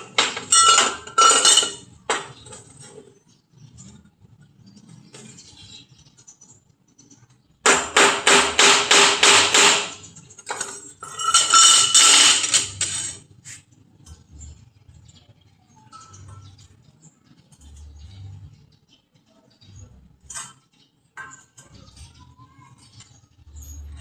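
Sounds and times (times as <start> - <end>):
metal clattering: 0.0 - 3.2, 7.7 - 13.3
hammer striking metal: 7.7 - 10.1.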